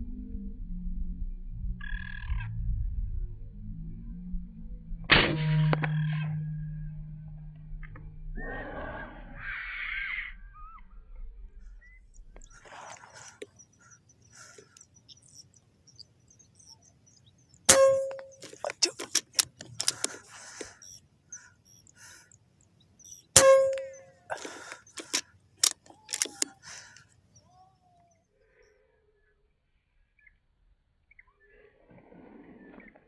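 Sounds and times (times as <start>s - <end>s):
air rifle shot with metallic ping: 5.1s - 6.0s, 17.7s - 18.5s, 23.4s - 24.1s
faint bird chirps: 8.4s - 18.7s, 20.0s - 33.0s.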